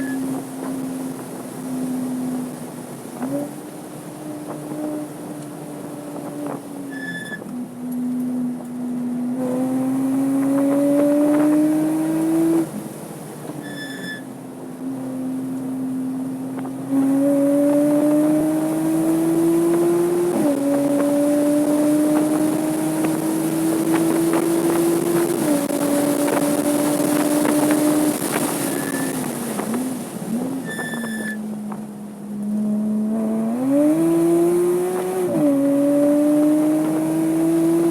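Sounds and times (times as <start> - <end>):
short electronic beeps: 0.0 - 0.2, 6.9 - 7.4, 13.6 - 14.3, 28.7 - 29.2, 30.6 - 31.4
car engine pulling hard: 0.0 - 37.9.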